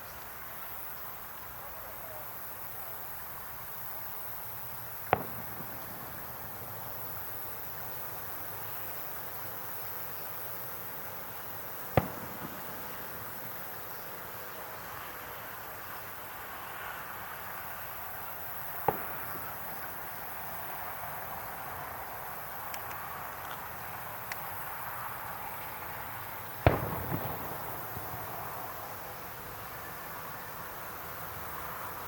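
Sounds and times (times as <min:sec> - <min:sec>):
background hiss: 0:00.0 - 0:32.0
fireworks crackle: 0:00.0 - 0:32.0
fireworks bangs: 0:03.8 - 0:15.9, 0:18.2 - 0:21.8, 0:24.2 - 0:30.4.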